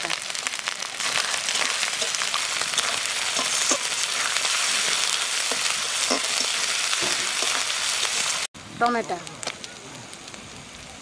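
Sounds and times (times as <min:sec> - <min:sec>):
food sizzling in hot oil: 0:00.0 - 0:11.0
metal spatula scraping a pan: 0:01.0 - 0:08.5.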